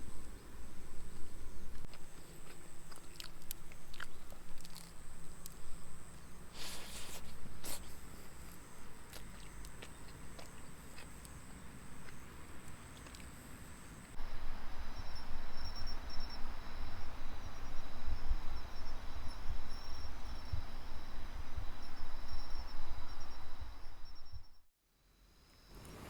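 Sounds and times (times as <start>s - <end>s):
insects chirping: 0.0s - 26.0s
even hiss: 6.5s - 8.6s, 25.2s - 26.0s.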